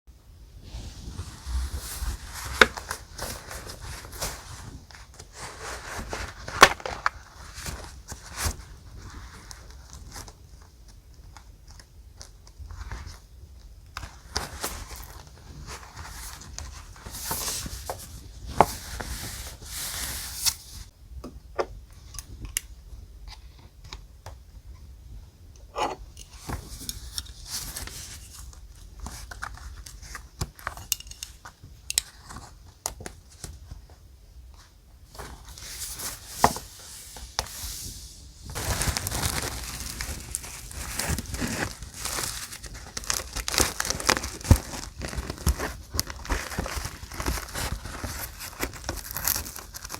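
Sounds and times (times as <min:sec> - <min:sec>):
paper rustling and tearing: 0:01.0 - 0:10.3, 0:35.2 - 0:49.9.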